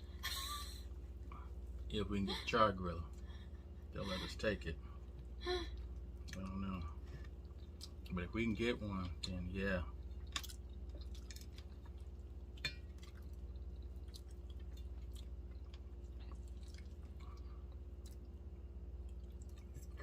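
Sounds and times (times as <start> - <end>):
steady low hum: 0.0 - 20.0
faint chewing and mouth clicks: 5.0 - 20.0.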